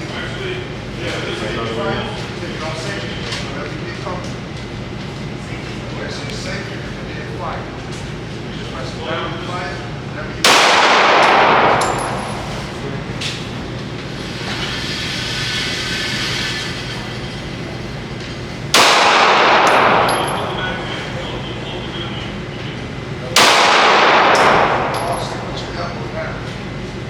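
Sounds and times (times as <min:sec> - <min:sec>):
gunshots with ringing echo: 0:10.5 - 0:12.7, 0:18.7 - 0:20.8, 0:23.4 - 0:25.5.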